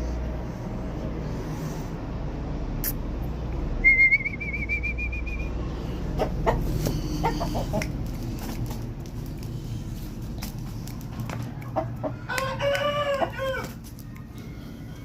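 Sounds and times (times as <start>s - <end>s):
bird trilled whistle: 3.8s - 5.6s.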